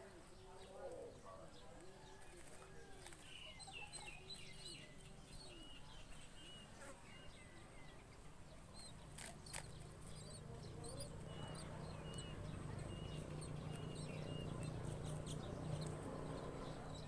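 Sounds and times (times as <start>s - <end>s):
high bird chirps: 8.7s - 17.0s
low cooing bird call: 8.7s - 17.0s.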